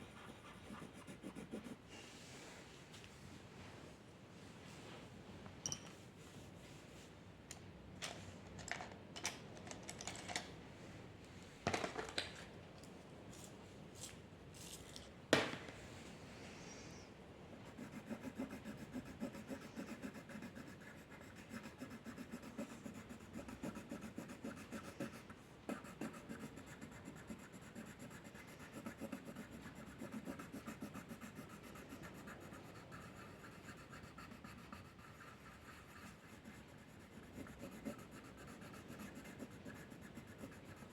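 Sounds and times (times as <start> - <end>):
drawing tip scratching paper: 17.7 - 40.9.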